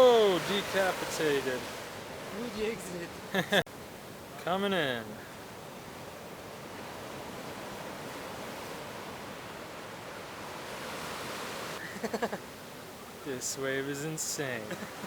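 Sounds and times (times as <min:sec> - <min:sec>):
person shouting: 0:00.0 - 0:00.4
ocean surf: 0:00.0 - 0:15.0.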